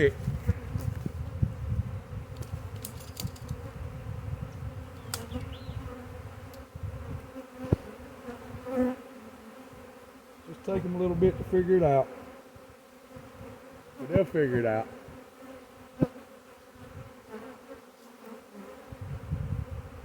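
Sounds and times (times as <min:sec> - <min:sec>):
honey bee swarm buzzing: 0:00.0 - 0:20.0
sharp click: 0:05.0 - 0:05.4.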